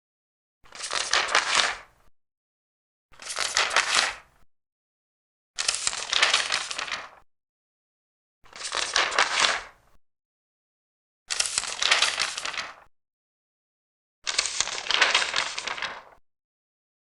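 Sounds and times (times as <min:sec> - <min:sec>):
paper pages turning: 0:00.7 - 0:01.9, 0:03.2 - 0:04.2, 0:05.6 - 0:07.2, 0:08.5 - 0:09.8, 0:11.3 - 0:12.9, 0:14.3 - 0:16.2.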